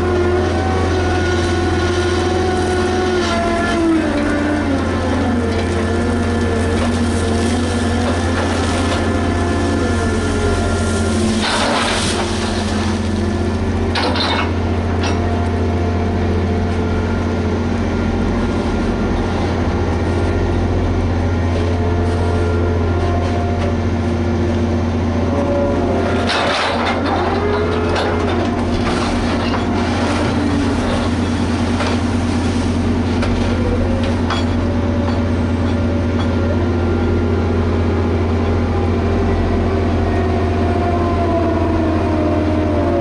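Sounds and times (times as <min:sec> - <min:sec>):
dragline diesel engine droning: 0:00.0 - 0:43.0
winch and drive whines: 0:00.0 - 0:43.0.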